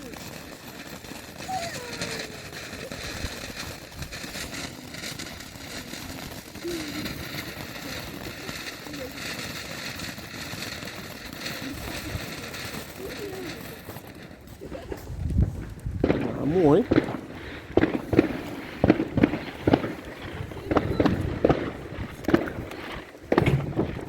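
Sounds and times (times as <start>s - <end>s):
firework fountain hissing and crackling: 0.0s - 24.0s
faint voices: 1.3s - 10.4s, 11.2s - 15.2s, 16.1s - 24.0s.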